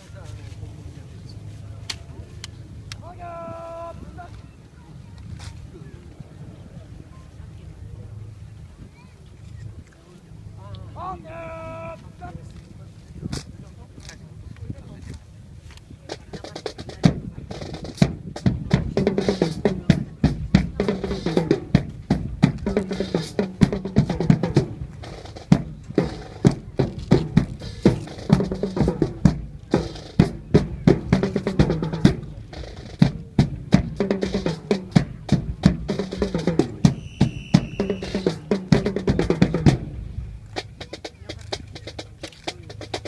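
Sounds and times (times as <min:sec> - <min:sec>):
snare and bass drums marching: 0:16.0 - 0:43.0
short high whistle: 0:37.0 - 0:38.1.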